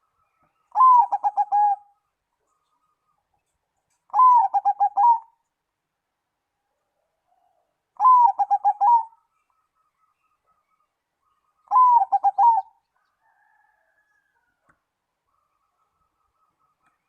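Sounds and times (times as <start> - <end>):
dove cooing: 0.7 - 2.0, 4.1 - 5.4, 8.0 - 9.2, 11.7 - 12.8.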